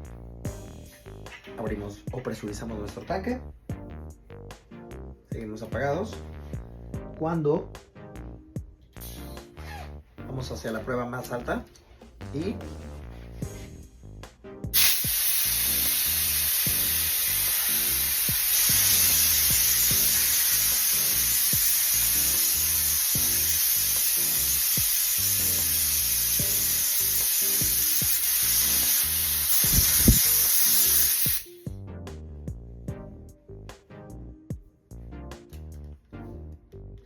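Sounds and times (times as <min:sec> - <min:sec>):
background music: 0:00.0 - 0:37.0
compressed gas hissing: 0:14.8 - 0:31.6.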